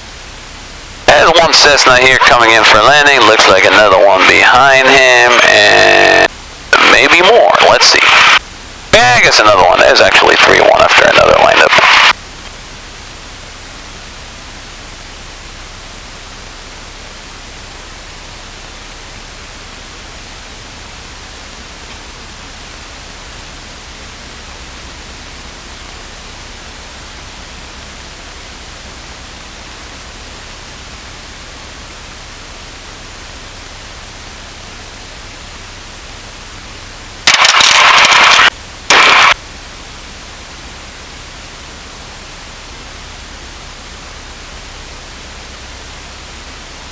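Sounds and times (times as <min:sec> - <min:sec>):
radio static hiss: 0:00.0 - 0:39.5
loud noise bursts: 0:01.0 - 0:12.2, 0:37.2 - 0:39.4.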